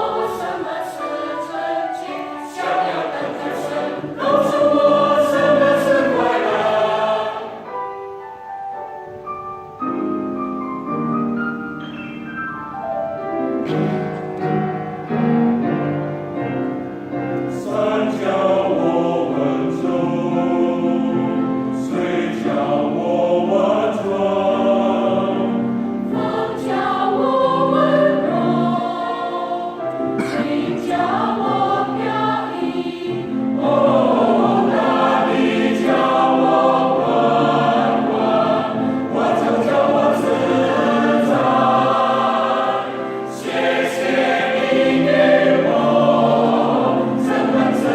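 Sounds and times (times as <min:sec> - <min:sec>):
choir singing in harmony: 0:00.0 - 0:12.0, 0:12.6 - 0:47.9.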